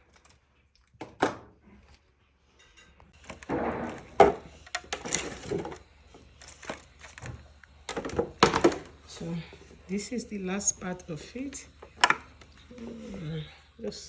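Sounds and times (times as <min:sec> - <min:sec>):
kitchen items clattering: 0:02.5 - 0:09.8.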